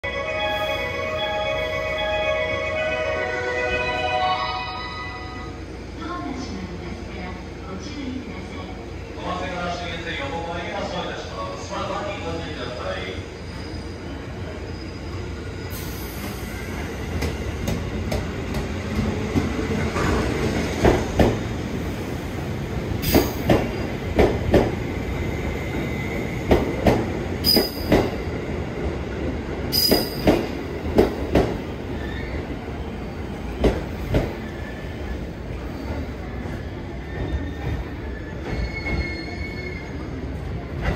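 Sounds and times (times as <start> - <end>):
train rumbling: 9.7 - 40.9.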